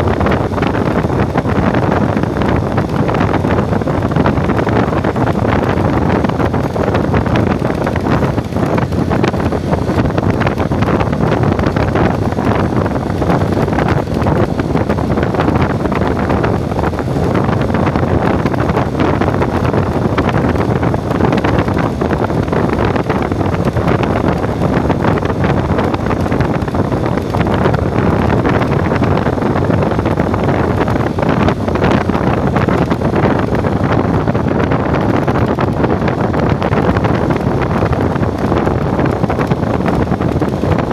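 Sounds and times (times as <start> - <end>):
vehicle engine noise: 0.0 - 40.9
wind buffeting microphone: 0.0 - 40.9.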